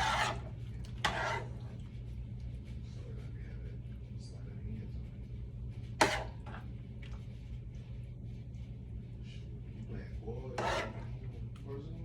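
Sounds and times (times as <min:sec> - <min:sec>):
steady low hum: 0:00.0 - 0:12.0
utensil clacking against dish: 0:06.0 - 0:06.6, 0:10.5 - 0:11.2.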